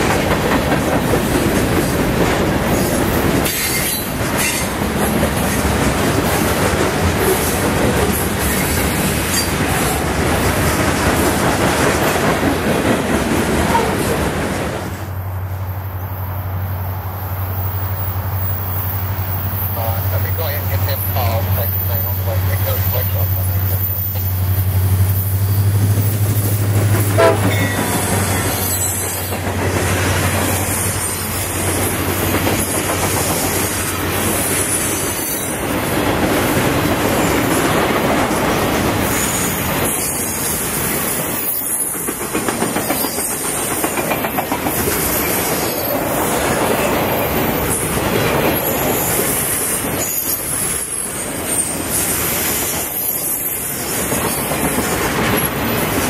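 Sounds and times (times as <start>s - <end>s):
diesel locomotive engine drone: 0.0s - 41.5s
freight cars rumbling over rails: 0.0s - 56.0s.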